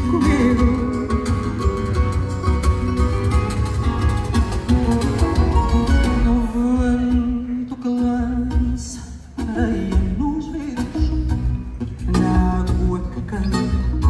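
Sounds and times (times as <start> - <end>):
woman singing: 0.0 - 1.5
guitars and bass: 0.0 - 14.0.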